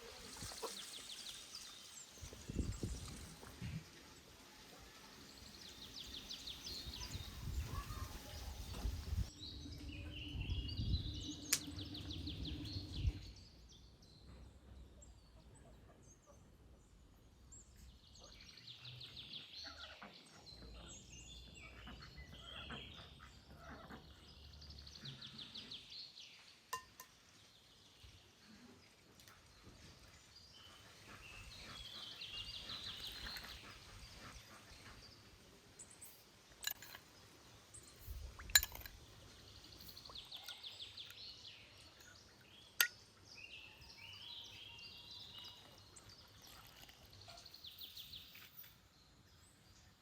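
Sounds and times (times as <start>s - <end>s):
songbirds chirping and trilling: 0.0s - 50.0s
low rumbling noise: 9.3s - 13.4s.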